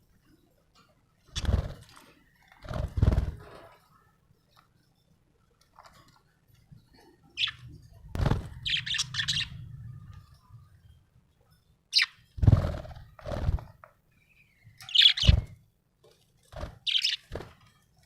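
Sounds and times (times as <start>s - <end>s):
budgerigar chirping: 8.6s - 9.6s, 14.9s - 15.4s, 16.9s - 17.2s.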